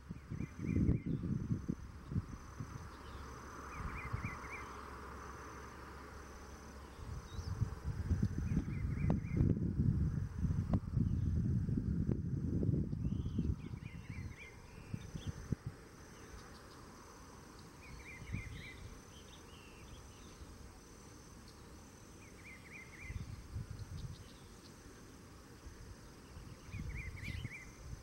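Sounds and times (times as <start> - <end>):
small bird chirping: 0.0 - 5.0, 6.8 - 9.6, 12.8 - 20.6, 21.3 - 25.2, 26.0 - 28.0
high insect trill: 0.0 - 28.0.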